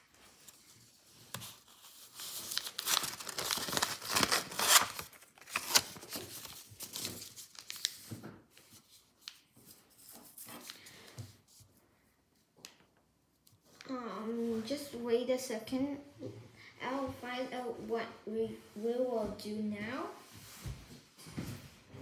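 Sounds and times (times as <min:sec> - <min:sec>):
paper crinkling and rustling: 0:00.0 - 0:11.7.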